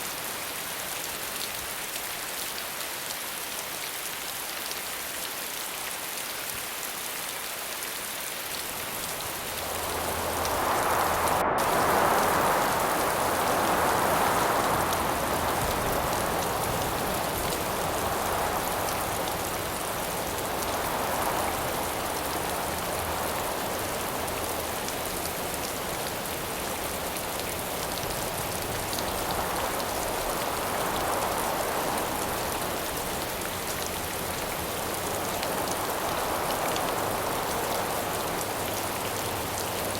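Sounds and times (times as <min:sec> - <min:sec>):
rain falling: 0:00.0 - 0:39.9
wind gusts: 0:08.2 - 0:39.9.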